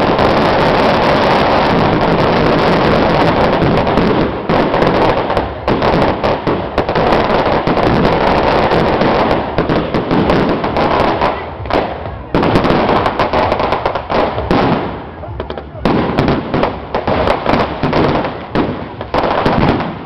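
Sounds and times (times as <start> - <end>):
firecrackers popping: 0.0 - 20.0.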